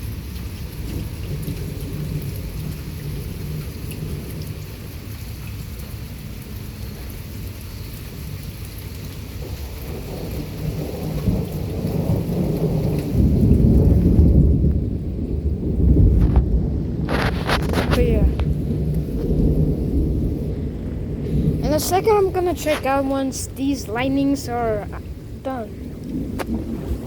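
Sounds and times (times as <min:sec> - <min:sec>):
rain hissing: 0:00.0 - 0:27.0
thunder rolling: 0:09.4 - 0:27.0.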